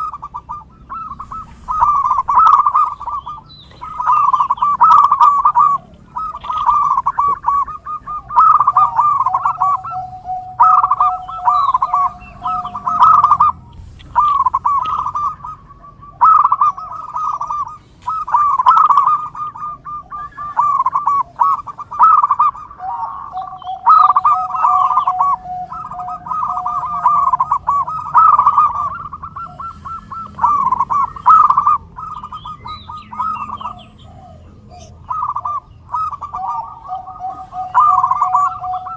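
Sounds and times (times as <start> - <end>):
doves cooing: 0.0 - 38.9
long low steady note: 8.5 - 14.0.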